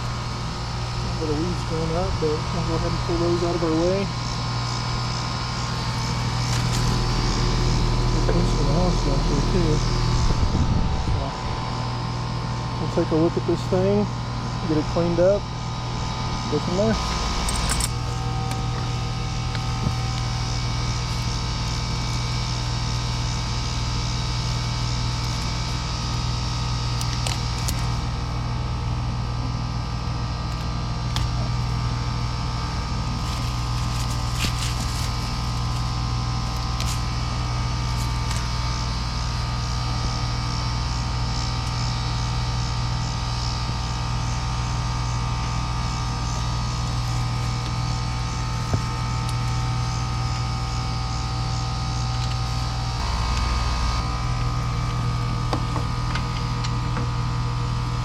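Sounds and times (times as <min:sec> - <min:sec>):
air conditioner unit humming: 0:00.0 - 0:58.0.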